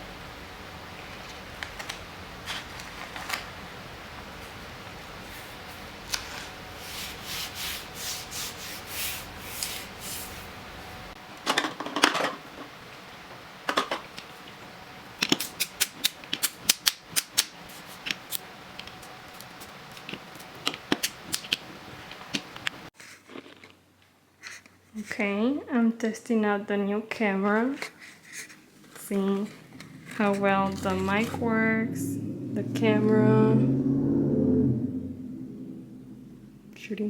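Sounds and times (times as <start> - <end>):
packaging rustling: 1.2 - 3.7.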